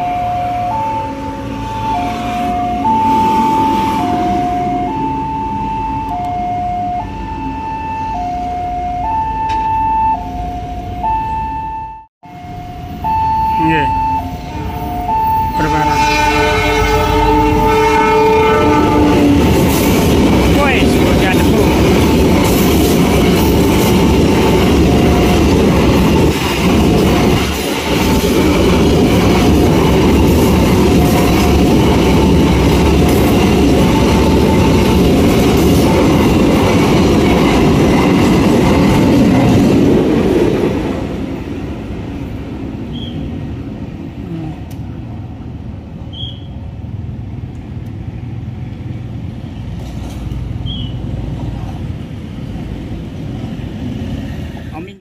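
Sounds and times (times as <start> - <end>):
two-note warning tone: 0.0 - 19.1
freight train wheels clattering: 19.3 - 41.3.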